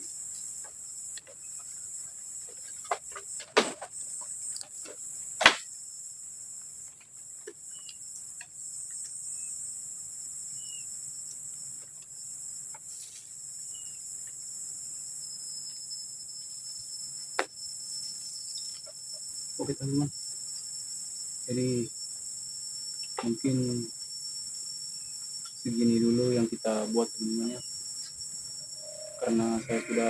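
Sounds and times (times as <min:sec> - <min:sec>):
chorus of forest insects: 0:00.0 - 0:30.0.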